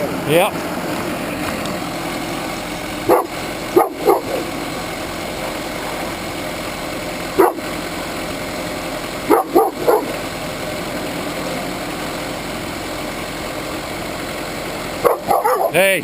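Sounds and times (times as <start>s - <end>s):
sawmill engine drone: 0.0s - 16.0s
dogs barking: 3.0s - 4.6s, 7.4s - 7.8s, 9.3s - 10.2s, 15.0s - 15.8s.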